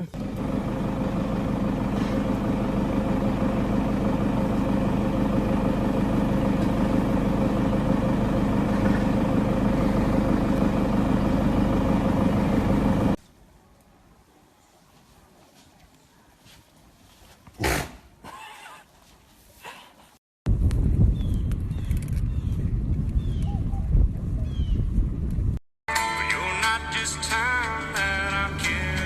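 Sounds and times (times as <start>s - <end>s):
mechanical motor hum: 0.0s - 13.2s.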